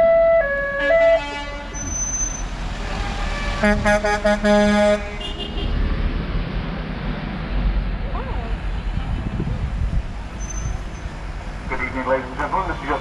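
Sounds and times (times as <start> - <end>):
engine and traffic rumble: 0.0 - 13.0
two-tone vehicle horn: 0.8 - 5.8
deep horn short toots: 2.8 - 5.8.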